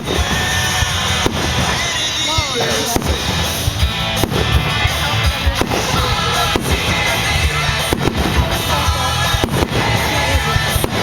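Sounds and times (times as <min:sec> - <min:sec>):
fireworks bangs: 0:00.0 - 0:11.0
fireworks rumble and crackle: 0:00.0 - 0:11.0.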